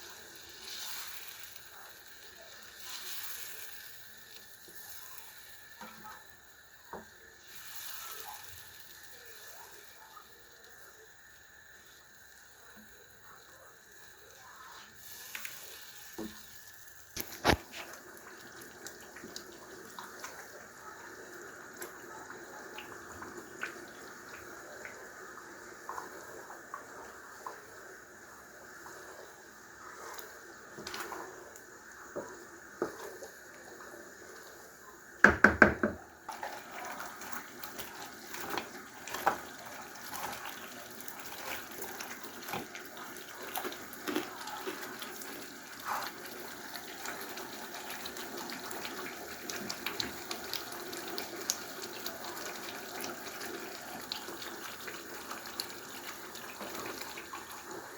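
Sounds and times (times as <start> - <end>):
stew sizzling in a pot: 0.0 - 57.9
small pops and crackles: 16.2 - 18.0.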